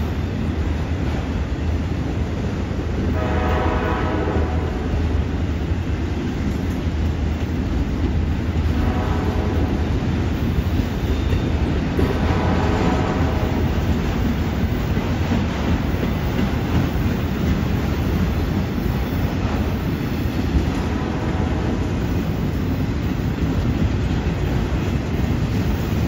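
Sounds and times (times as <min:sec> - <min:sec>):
freight train rumbling past: 0:00.0 - 0:26.0.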